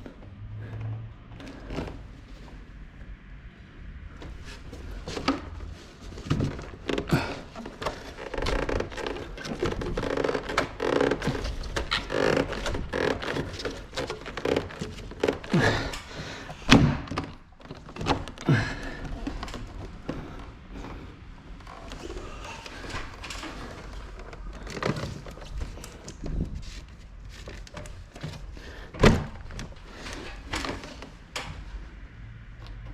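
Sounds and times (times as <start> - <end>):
plastic rubbing and rustling: 4.3 - 20.4, 21.7 - 28.8.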